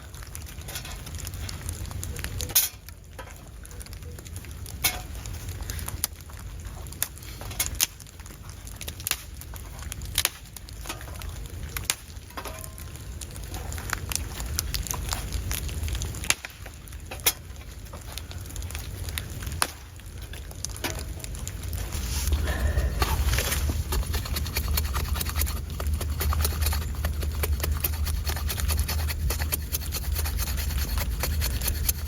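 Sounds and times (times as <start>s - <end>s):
sharp snaps and crackles: 0.0s - 32.0s
steady low rumble: 18.2s - 32.0s.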